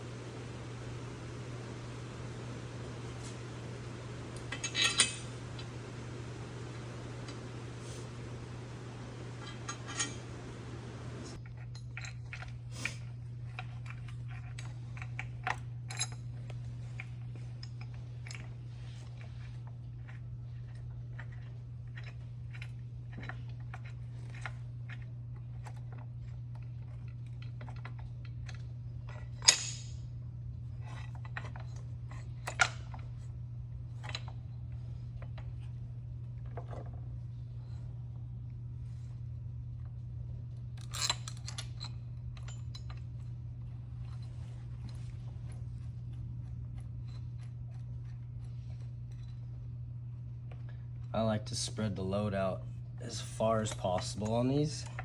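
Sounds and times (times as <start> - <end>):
steady low hum: 0.0 - 55.0
tools clinking on metal parts: 4.4 - 5.7, 9.4 - 10.7, 27.5 - 30.0, 40.8 - 43.2.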